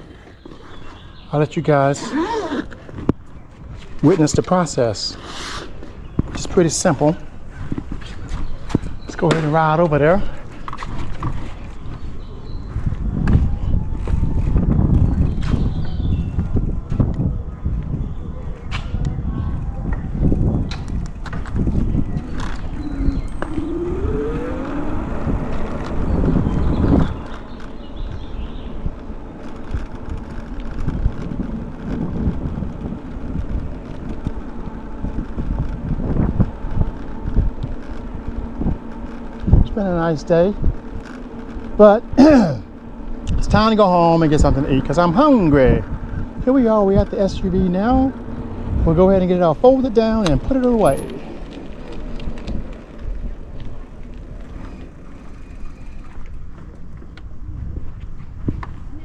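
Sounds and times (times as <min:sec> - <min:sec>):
bike clicks and rattles: 0:05.7 - 0:59.0
wind buffeting microphone: 0:05.7 - 0:59.0
low uneven rumble: 0:19.0 - 0:59.0.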